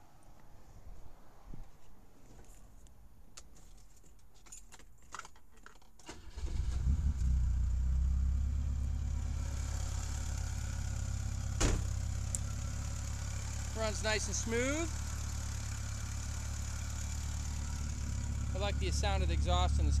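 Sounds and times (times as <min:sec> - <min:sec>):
car engine starting and idling: 0:06.0 - 0:20.0.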